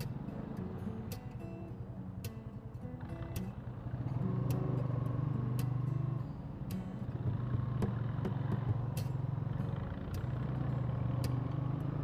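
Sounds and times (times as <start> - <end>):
motorcycle engine running: 3.0 - 12.0.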